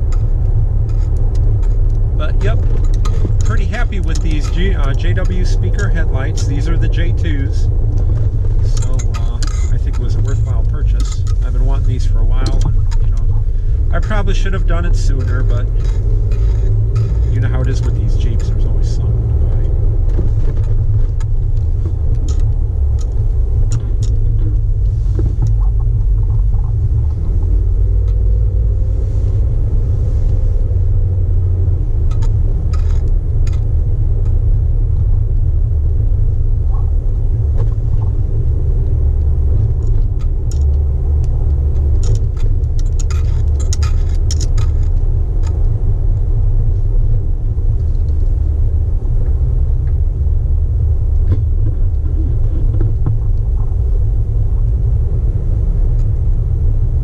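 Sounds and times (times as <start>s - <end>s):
light clicks and rattles: 0.0s - 28.7s, 31.7s - 35.4s, 36.7s - 46.4s
engine and road rumble: 0.0s - 57.0s.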